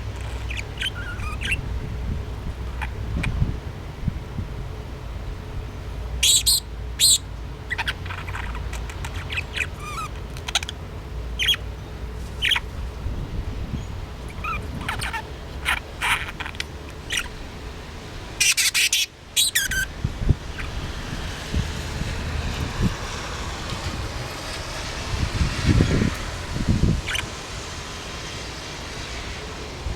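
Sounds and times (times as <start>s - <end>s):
budgerigar chirping: 0.2s - 1.6s, 6.2s - 10.8s, 11.4s - 11.6s, 12.4s - 12.7s, 14.3s - 17.3s, 18.4s - 19.9s.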